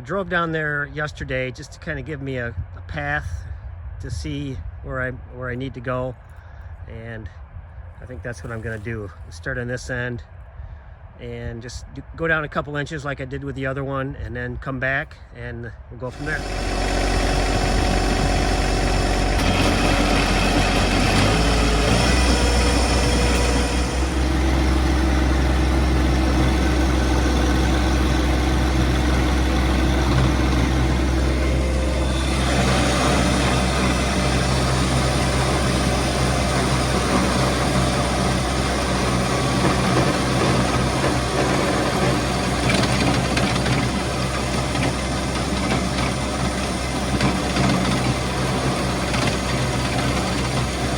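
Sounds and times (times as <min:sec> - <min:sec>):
tractor diesel engine running: 0:16.0 - 0:50.9
rototiller churning soil: 0:16.1 - 0:50.9.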